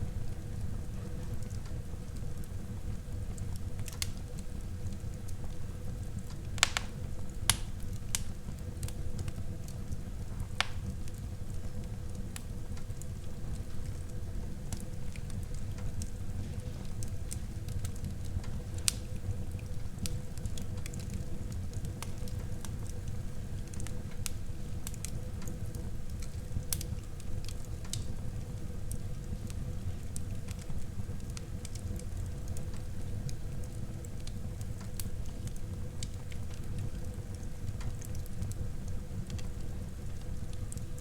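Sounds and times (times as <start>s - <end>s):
fire crackling and popping: 0.0s - 41.0s
wood fire flames rumbling: 0.0s - 41.0s.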